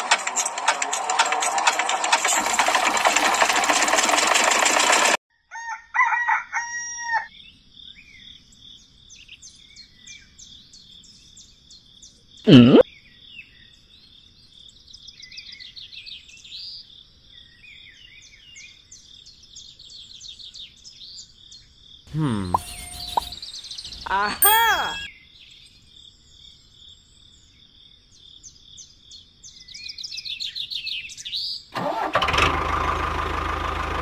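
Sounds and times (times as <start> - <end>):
rooster crowing: 5.4 - 7.3
bird chirps: 19.6 - 25.7.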